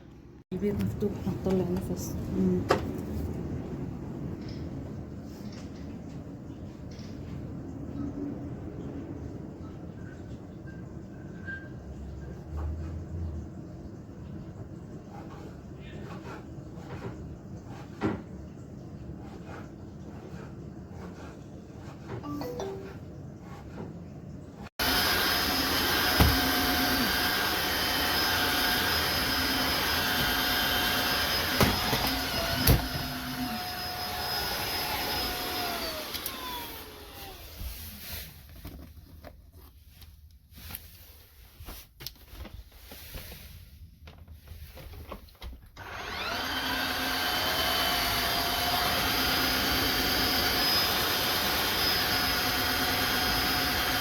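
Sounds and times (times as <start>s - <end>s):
vacuum mop motor whine: 24.8s - 37.8s, 45.8s - 54.0s.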